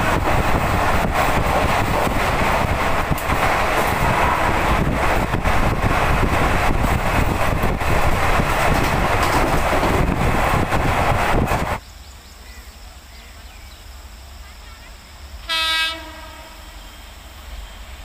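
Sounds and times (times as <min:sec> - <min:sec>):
wind buffeting microphone: 0:00.0 - 0:11.8
train wheels rumbling on rails: 0:00.0 - 0:18.0.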